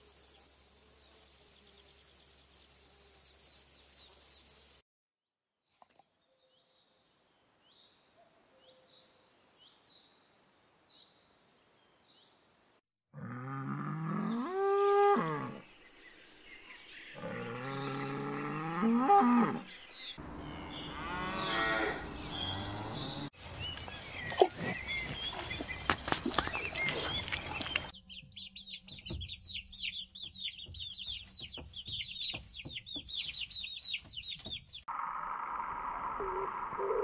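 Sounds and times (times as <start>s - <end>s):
cow mooing: 13.2s - 15.6s, 17.2s - 19.7s, 20.9s - 22.0s.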